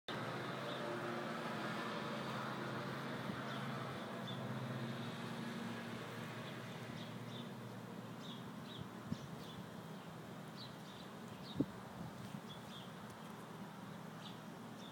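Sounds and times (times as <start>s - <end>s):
small birds chirping: 6.3s - 14.9s.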